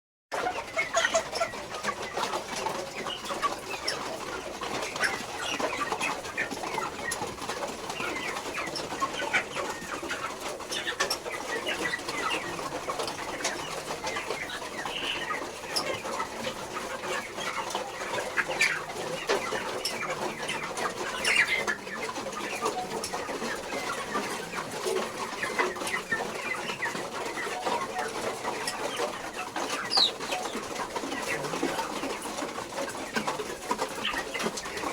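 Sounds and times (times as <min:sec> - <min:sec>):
chickens clucking: 0:00.3 - 0:34.9.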